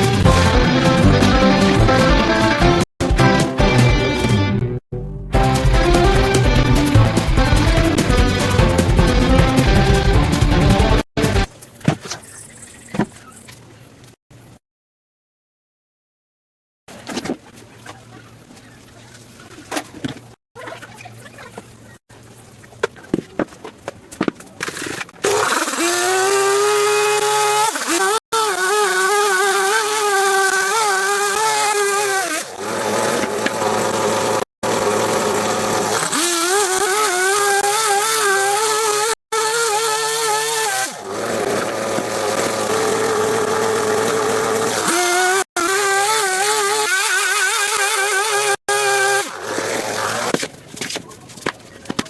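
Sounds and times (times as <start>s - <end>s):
small engine revving: 24.7s - 50.3s.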